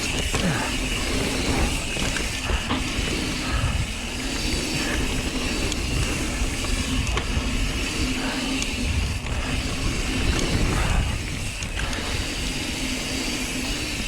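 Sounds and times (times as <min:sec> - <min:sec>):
bike knocks and rattles: 0:00.0 - 0:12.2
bike tyres rolling on dirt: 0:00.0 - 0:14.0
wind on microphone: 0:01.5 - 0:12.6.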